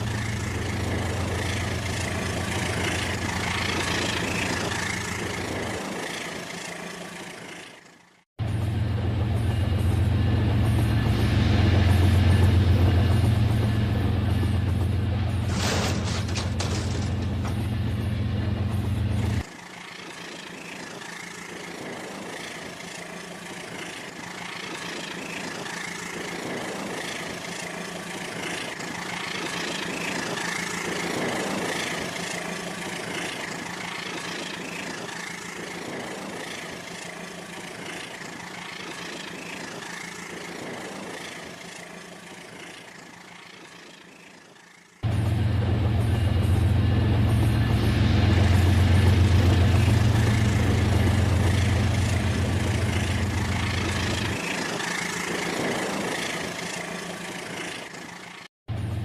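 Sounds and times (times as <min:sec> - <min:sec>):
toy train whirring: 0:19.4 - 0:45.0, 0:50.2 - 0:58.5.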